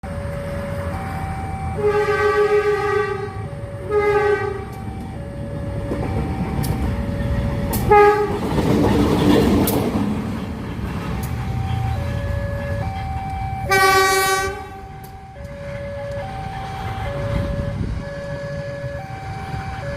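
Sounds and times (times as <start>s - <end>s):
two-tone crossing alarm: 0.0s - 8.7s, 11.1s - 19.9s
passing train rumble: 0.0s - 19.9s
locomotive horn blasts: 1.8s - 4.8s, 7.7s - 8.5s, 11.7s - 17.9s.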